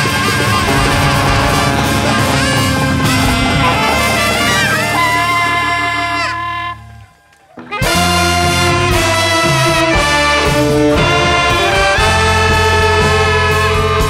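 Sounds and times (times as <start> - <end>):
held horn notes: 0.1 - 9.7
jazz band playing: 0.4 - 6.9.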